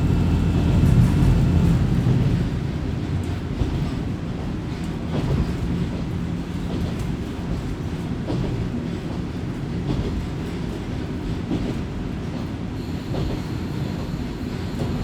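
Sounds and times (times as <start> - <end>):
railcar engine and wheels rumbling: 0.0 - 15.0
faint high whine: 12.8 - 15.0.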